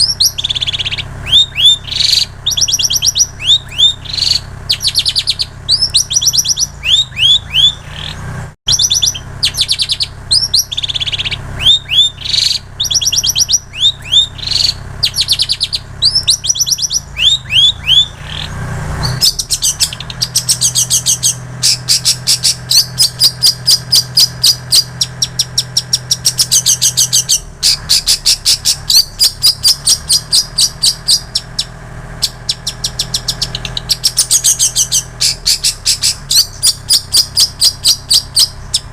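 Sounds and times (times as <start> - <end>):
shrike singing: 0.0 - 38.9
steady low hum: 0.0 - 38.9.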